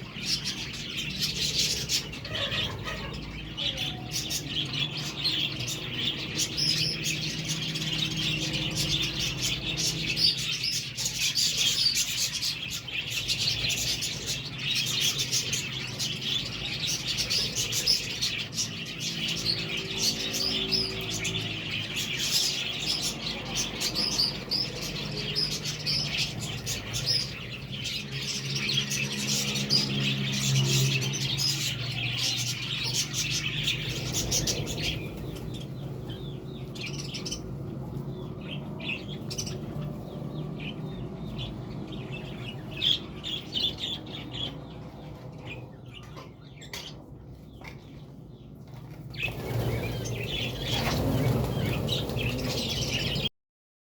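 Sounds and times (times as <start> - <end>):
budgerigars chattering: 0.0 - 37.4.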